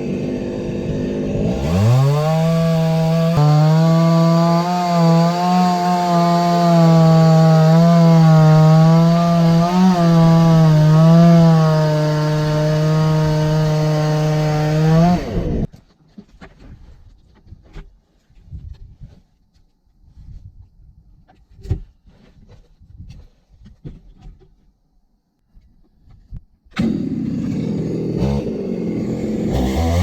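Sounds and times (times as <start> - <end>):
chainsaw cutting wood: 0.0 - 15.7, 26.7 - 30.0.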